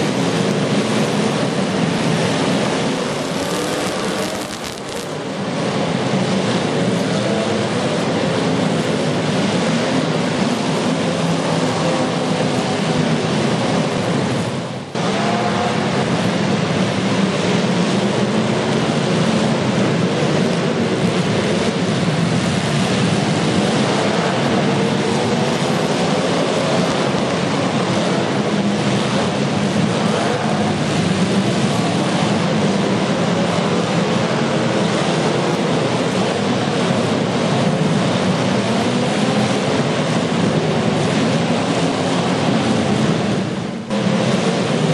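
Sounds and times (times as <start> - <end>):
car engines revving loudly: 0.0 - 44.9.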